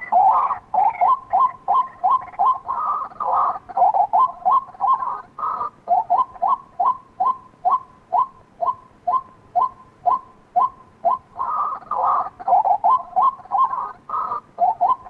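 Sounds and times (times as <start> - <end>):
bird croaking chatter: 0.0 - 15.0
bird kwak calls: 0.0 - 15.0.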